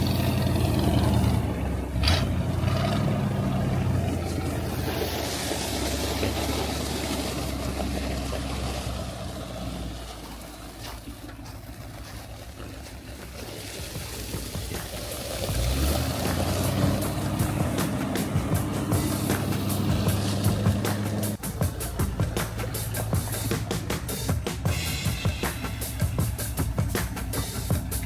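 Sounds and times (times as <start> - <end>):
vehicle engine humming: 0.0 - 28.0
noisy background: 9.4 - 28.0.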